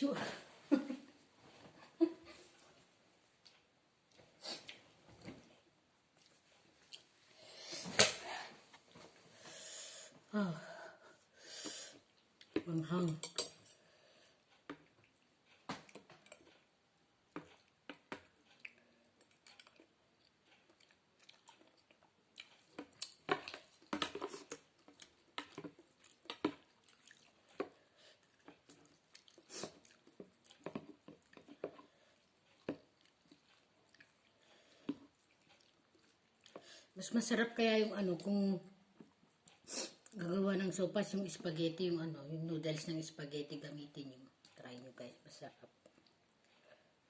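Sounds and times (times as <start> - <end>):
wet chewing and mouth noises: 6.1 - 7.3, 14.4 - 16.7, 17.3 - 36.9.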